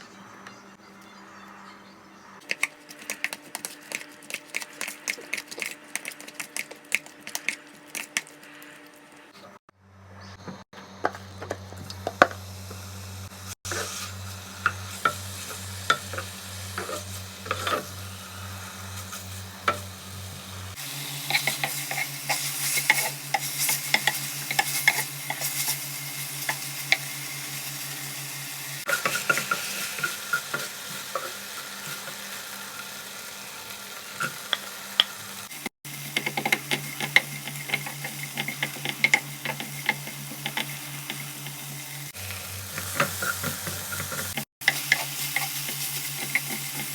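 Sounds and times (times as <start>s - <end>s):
food sizzling in a frying pan: 11.4s - 46.9s
utensil scraping a pan: 13.7s - 20.4s, 21.2s - 27.0s, 28.9s - 32.3s, 35.9s - 46.9s.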